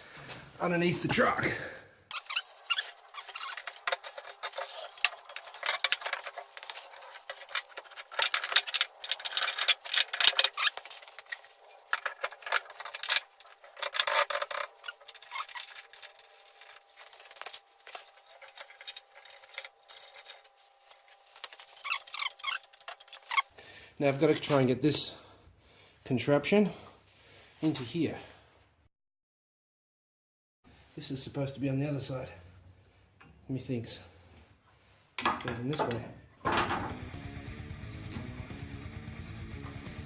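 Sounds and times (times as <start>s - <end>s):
metallic scraping and knocking: 2.1s - 16.8s, 35.2s - 37.0s.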